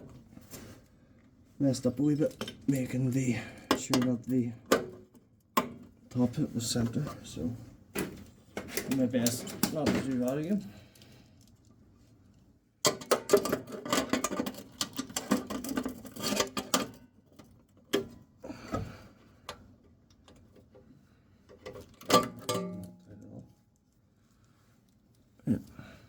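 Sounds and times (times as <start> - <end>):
metal clatter: 22.0 - 23.0.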